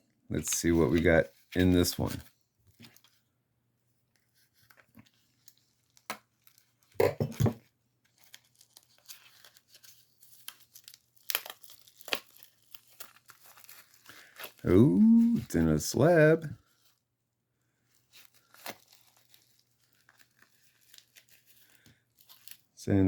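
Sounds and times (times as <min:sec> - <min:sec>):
packaging tearing and crinkling: 0:08.1 - 0:15.4, 0:18.0 - 0:22.8.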